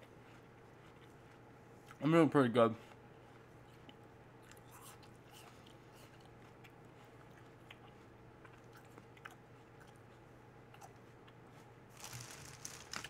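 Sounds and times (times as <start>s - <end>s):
chewing apple crunches: 0.0s - 2.0s, 2.8s - 13.0s
low steady hum: 0.0s - 13.0s.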